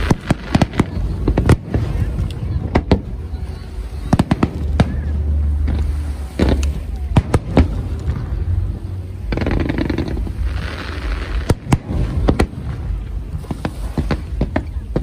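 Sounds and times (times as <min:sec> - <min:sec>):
fireworks bangs: 0:00.0 - 0:15.0
steady low rumble: 0:00.0 - 0:15.0.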